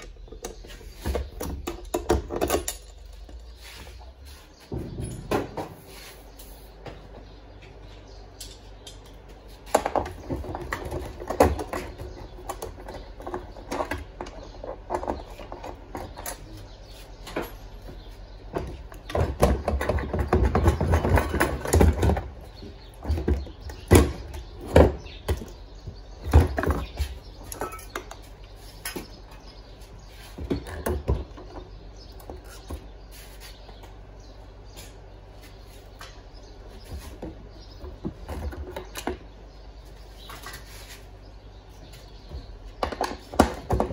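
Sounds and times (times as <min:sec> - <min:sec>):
hard parts knocking and clattering: 0:00.0 - 0:03.6, 0:04.6 - 0:05.9, 0:08.4 - 0:29.8, 0:42.1 - 0:43.9.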